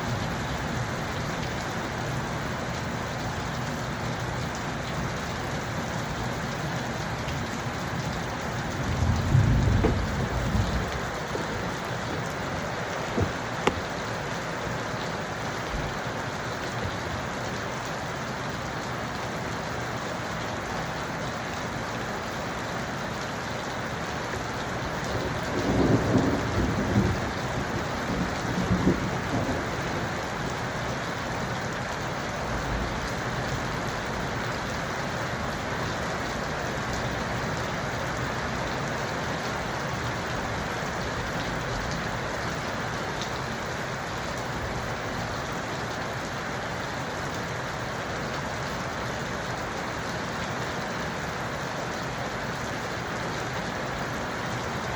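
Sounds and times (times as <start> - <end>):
steady rain falling: 0.0 - 54.9
thunder rumbling: 8.6 - 14.0, 25.3 - 30.0.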